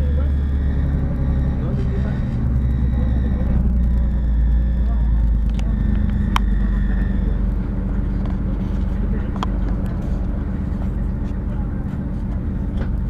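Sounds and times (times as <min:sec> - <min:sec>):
train engine and wheel rumble: 0:00.0 - 0:13.0
sharp clicks: 0:00.4 - 0:10.4.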